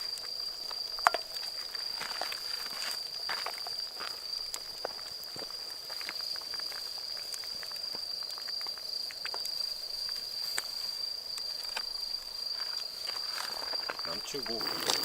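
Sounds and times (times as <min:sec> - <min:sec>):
small sharp clicks and crackles: 0:04.5 - 0:15.0.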